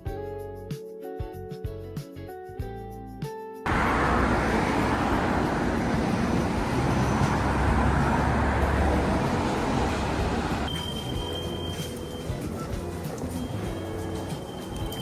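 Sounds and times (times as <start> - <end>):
gentle instrumental music: 0.0 - 3.6, 10.7 - 15.0
city street traffic: 3.7 - 15.0.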